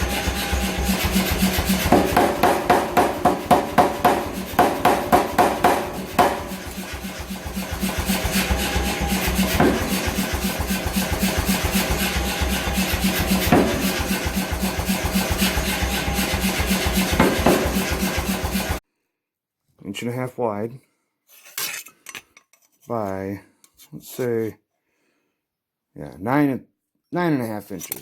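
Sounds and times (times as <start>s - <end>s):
tool rasping metal: 0.0s - 18.8s
sharp knocks: 1.8s - 7.0s, 9.3s - 10.5s, 13.2s - 14.4s, 17.1s - 18.0s.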